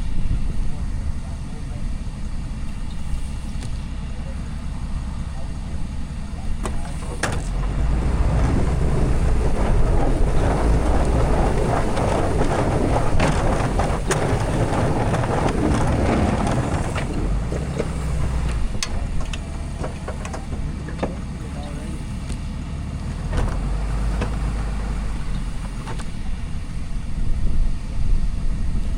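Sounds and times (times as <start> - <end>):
truck engine rumble: 0.0 - 28.9
rushing noise: 4.8 - 22.2.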